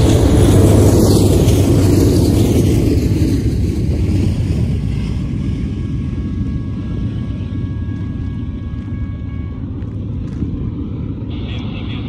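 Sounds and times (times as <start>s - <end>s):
diesel locomotive rumble: 0.0s - 12.0s.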